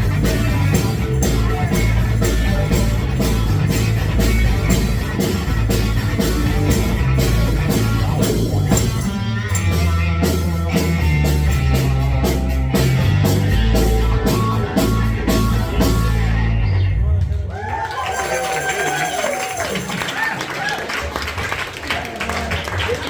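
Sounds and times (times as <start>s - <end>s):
drum kit beat: 0.0s - 16.7s
electric guitar: 0.0s - 17.4s
bass guitar: 0.0s - 19.9s.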